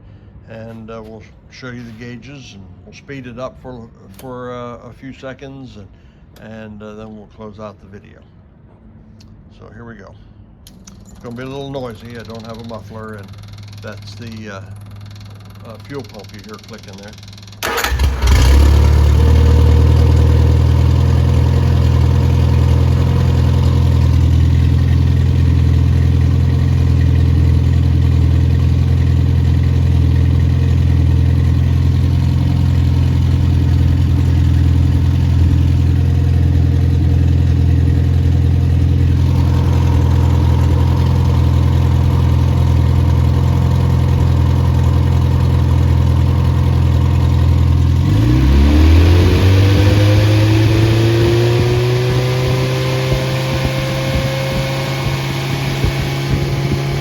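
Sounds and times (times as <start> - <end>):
car engine idling without muffler: 17.6 - 57.0.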